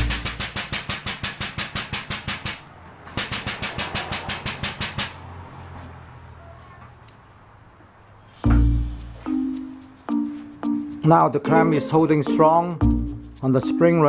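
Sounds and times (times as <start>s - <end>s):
pneumatic pump chattering clicks: 0.0s - 5.2s.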